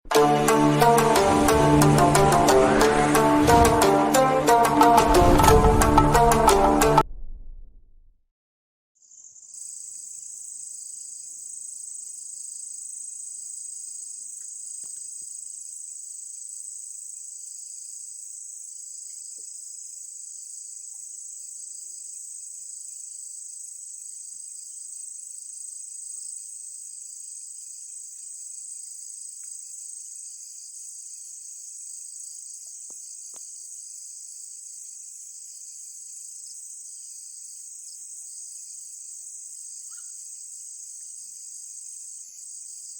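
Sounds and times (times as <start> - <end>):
low-pitched insect trill: 9.0 - 42.9
night insects chorus: 9.0 - 42.9.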